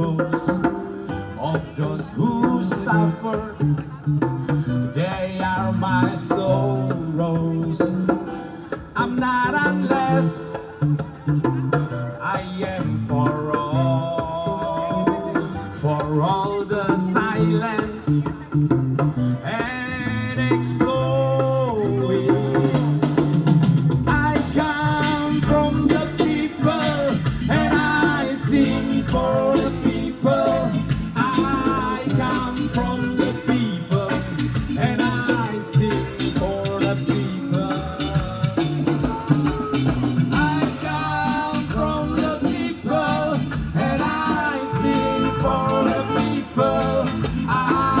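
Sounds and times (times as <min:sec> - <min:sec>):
band playing: 0:00.0 - 0:48.0
person singing: 0:19.4 - 0:23.2, 0:24.1 - 0:48.0.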